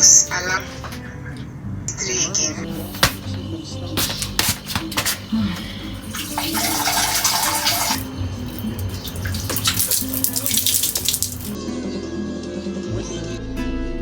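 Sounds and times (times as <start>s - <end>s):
background music: 0.0s - 14.0s
guitar music: 0.0s - 14.0s
tap running into sink: 6.0s - 11.6s.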